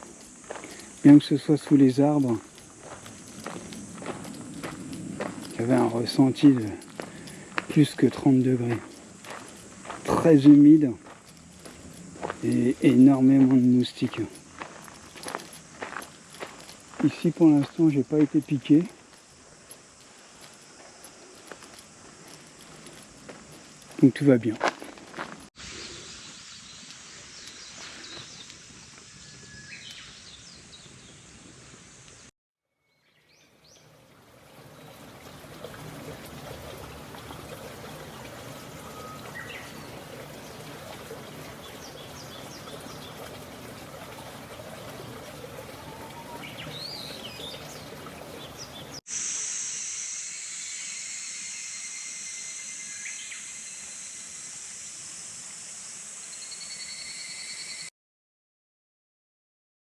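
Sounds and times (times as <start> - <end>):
birds chirping: 0.0 - 19.0, 33.0 - 49.0
high-pitched hiss: 0.0 - 32.3, 48.5 - 57.9.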